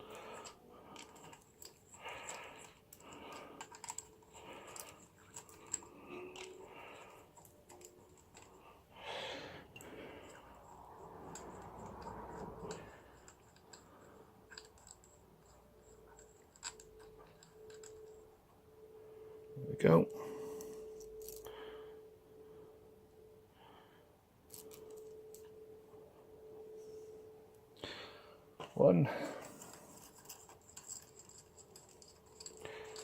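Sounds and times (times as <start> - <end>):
hand tools clicking and scraping: 0.0 - 18.3, 28.6 - 33.0.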